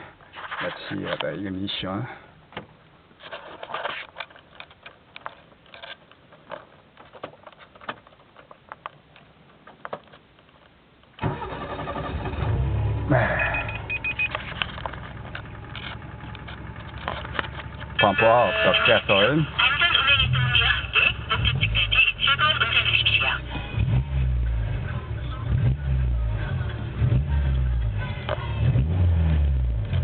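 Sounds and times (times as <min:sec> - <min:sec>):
car engine starting and idling: 0:11.2 - 0:30.0.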